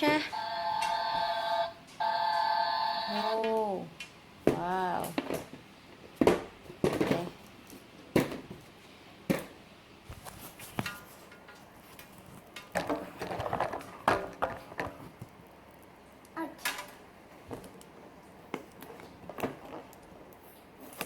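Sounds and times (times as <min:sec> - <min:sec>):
plastic toys clattering: 0:06.2 - 0:07.4, 0:12.4 - 0:15.2.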